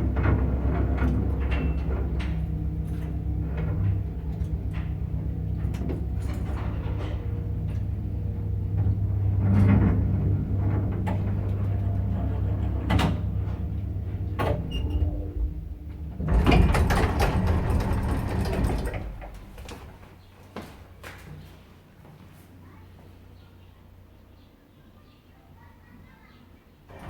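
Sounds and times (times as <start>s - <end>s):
elevator doors rattling slide: 0.0s - 20.2s
elevator motor humming: 0.0s - 20.3s
elevator clicks and knocks: 8.7s - 20.1s.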